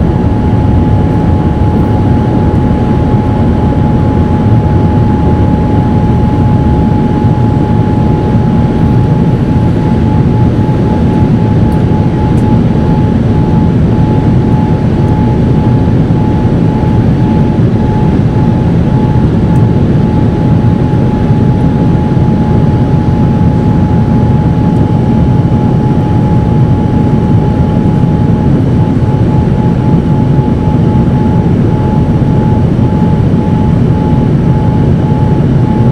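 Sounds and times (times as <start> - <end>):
high engine whine: 0.0 - 35.9
jet engines droning in flight: 0.0 - 35.9.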